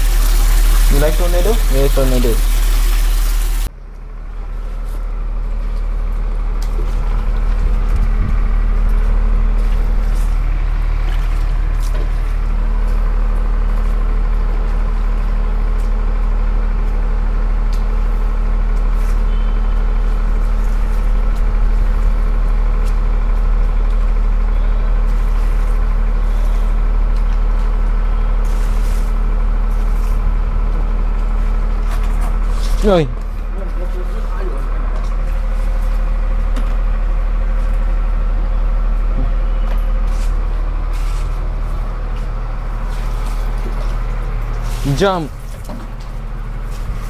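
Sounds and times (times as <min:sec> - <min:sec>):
machine motor humming: 0:00.0 - 0:03.7.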